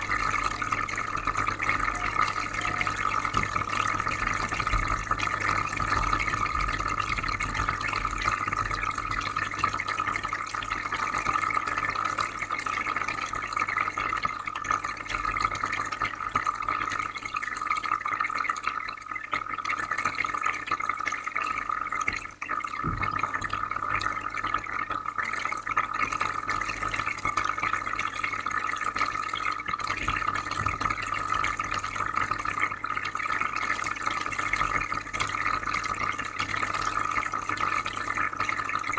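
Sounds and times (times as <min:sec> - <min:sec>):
filter low hum: 0:00.0 - 0:09.2
water trickling and bubbling: 0:00.0 - 0:38.9.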